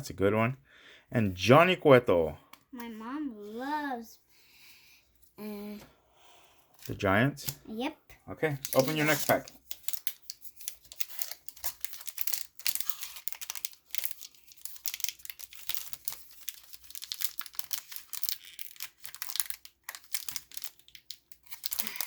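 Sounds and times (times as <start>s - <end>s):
plastic wrapper tearing and crinkling: 8.6s - 22.0s.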